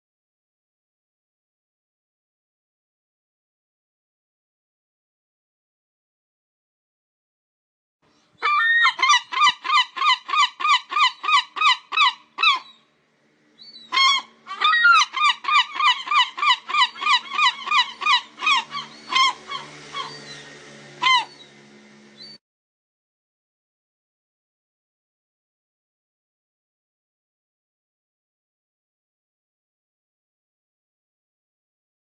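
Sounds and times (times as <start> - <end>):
gull calling: 8.4 - 12.8, 13.7 - 21.6.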